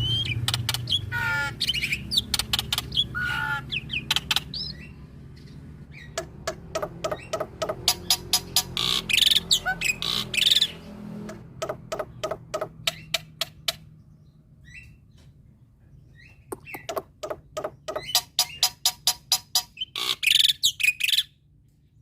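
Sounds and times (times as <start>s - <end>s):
starling clicking song: 0.0s - 14.1s, 16.2s - 21.8s
harsh rasping bird bursts: 6.0s - 13.7s.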